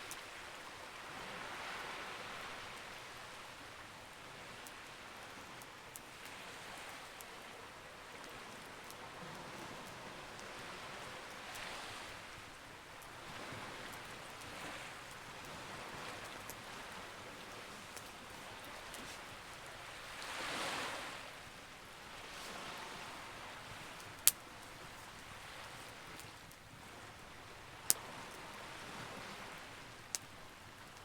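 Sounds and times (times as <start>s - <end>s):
campfire crackling: 0.0s - 31.0s
sea waves washing: 8.3s - 31.0s.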